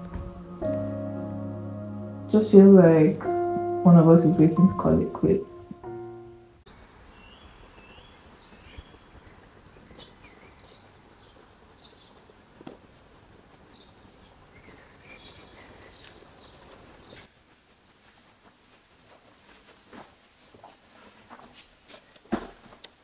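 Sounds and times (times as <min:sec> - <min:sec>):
background hiss: 0:00.0 - 0:23.0
small birds chirping: 0:06.7 - 0:17.4.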